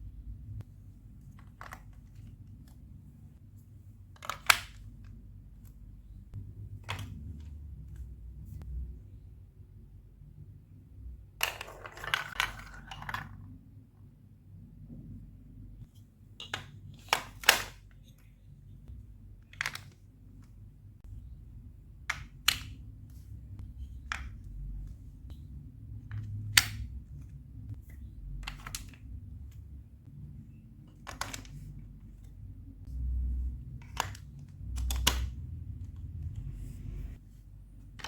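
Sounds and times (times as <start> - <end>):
plastic bricks clattering: 11.4 - 13.4.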